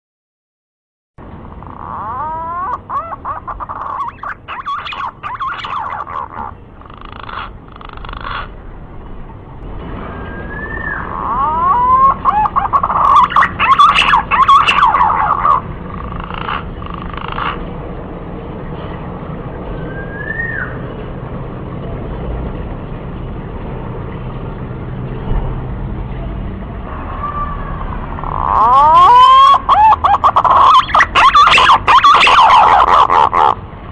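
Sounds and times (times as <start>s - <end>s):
steady low rumble: 1.2s - 33.9s
pigeon fluty whistles: 10.2s - 12.2s, 19.8s - 20.8s
faint short whistle: 19.9s - 20.8s
pigeon hoarse phrases: 29.6s - 33.5s.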